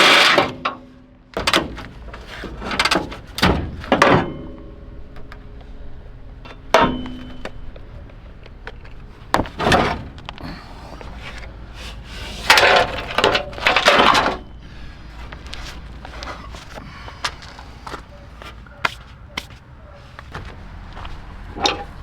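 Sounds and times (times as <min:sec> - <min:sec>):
metal parts knocking and clanking: 0:01.4 - 0:14.6, 0:21.6 - 0:22.0.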